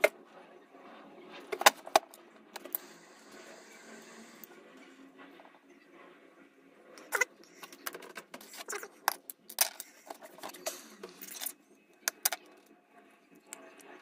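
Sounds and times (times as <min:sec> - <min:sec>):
small parts clicking and rattling: 0:07.0 - 0:12.7.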